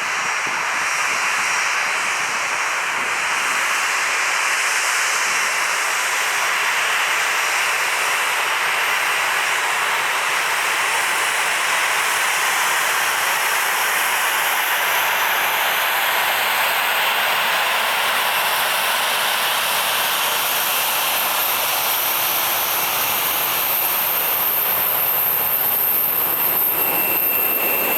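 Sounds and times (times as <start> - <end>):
high-pitched engine whine: 0.0 - 27.9
jet engines roaring: 11.8 - 27.9.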